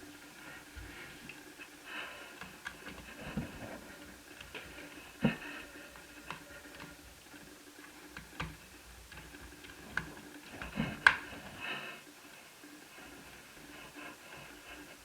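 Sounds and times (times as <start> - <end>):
plastic clicks and taps: 4.3 - 7.0, 8.1 - 11.3.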